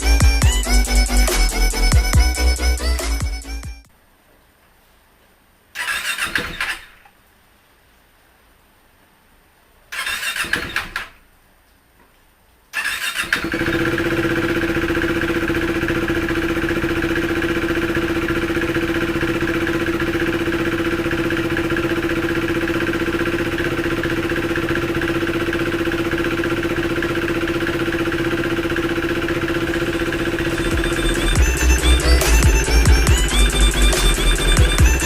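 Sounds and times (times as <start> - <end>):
motorcycle engine idling: 0.0 - 3.8, 13.1 - 35.0
music: 0.0 - 3.9, 30.6 - 35.0.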